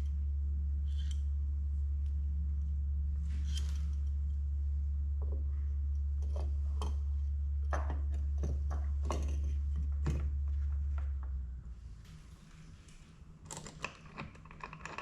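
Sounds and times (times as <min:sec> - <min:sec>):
steady low hum: 0:00.0 - 0:15.0
small parts clicking and knocking: 0:00.9 - 0:01.3, 0:06.2 - 0:11.2, 0:13.4 - 0:15.0.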